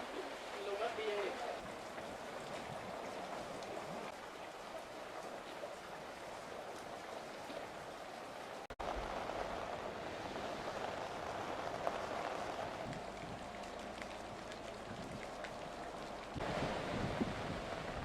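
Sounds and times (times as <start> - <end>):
heavy rain hissing: 6.4 - 18.0.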